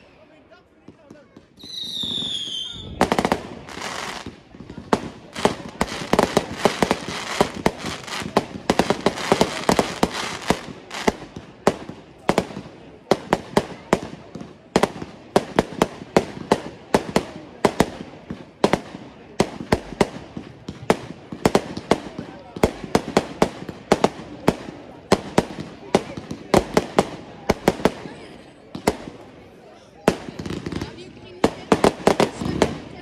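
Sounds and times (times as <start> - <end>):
fireworks bangs and crackle: 0.8 - 33.0.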